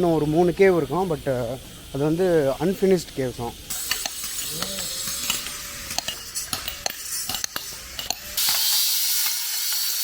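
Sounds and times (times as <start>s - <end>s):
steady hiss: 0.0s - 10.0s
hammers striking chisels on stone: 3.8s - 9.4s.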